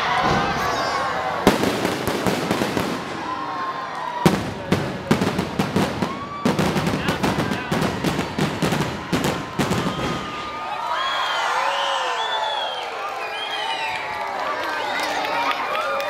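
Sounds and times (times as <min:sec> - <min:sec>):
crowd voices: 0:00.0 - 0:16.0
fireworks bangs and crackles: 0:00.1 - 0:10.7.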